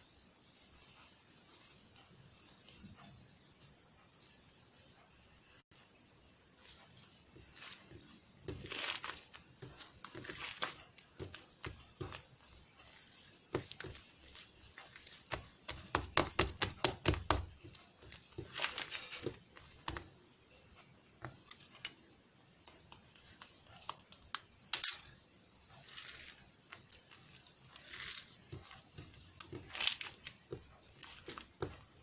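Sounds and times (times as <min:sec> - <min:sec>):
crinkling rustles: 0:06.6 - 0:15.9, 0:17.6 - 0:20.1, 0:25.7 - 0:32.0.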